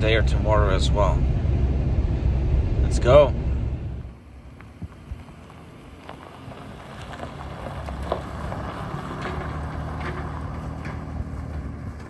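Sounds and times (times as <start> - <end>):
engine and road noise rumble: 0.0 - 12.0
small clicks and rattles: 6.9 - 12.0.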